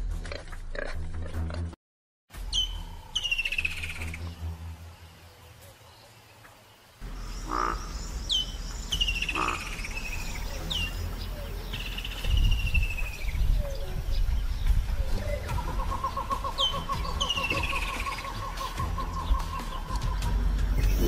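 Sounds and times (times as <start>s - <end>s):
birds whistling: 2.4s - 4.4s, 7.0s - 21.0s
steady low rumble: 7.0s - 16.0s.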